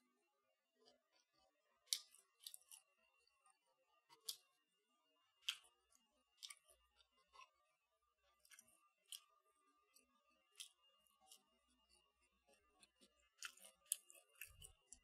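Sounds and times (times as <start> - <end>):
crunchy food chewing: 0.8 - 2.9, 4.1 - 4.6, 5.4 - 7.6, 8.3 - 15.0.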